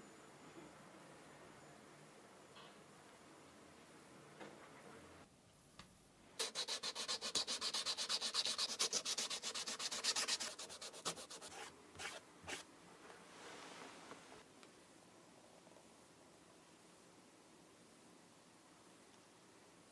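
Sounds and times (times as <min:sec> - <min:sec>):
abrasive rubbing on sneaker: 0:06.4 - 0:12.6.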